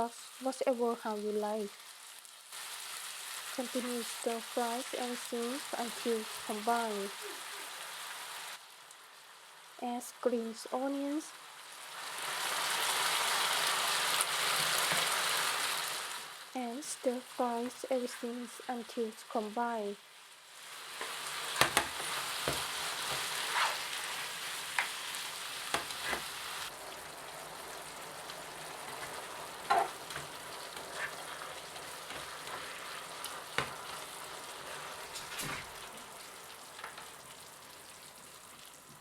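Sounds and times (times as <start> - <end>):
food sizzling in frying pan: 0.0 - 39.0
spatula scraping pan: 20.9 - 26.6, 28.8 - 35.8.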